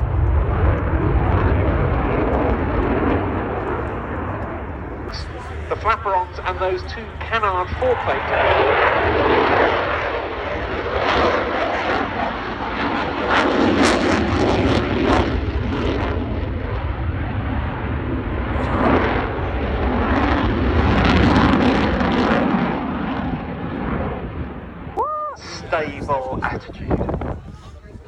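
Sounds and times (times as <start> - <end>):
jet engines passing: 0.0 - 28.0.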